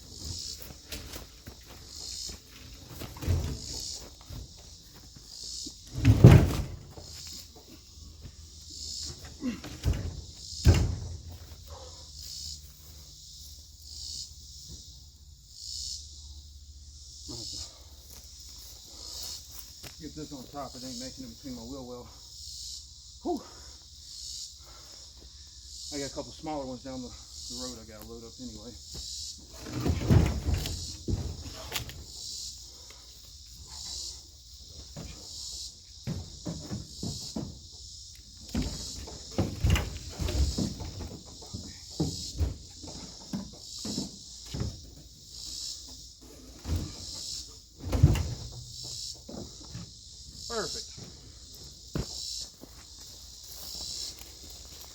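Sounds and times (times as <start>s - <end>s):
dull knocks and thumps: 0.0s - 12.0s, 28.8s - 32.7s, 33.5s - 52.9s
insects buzzing: 0.0s - 54.9s.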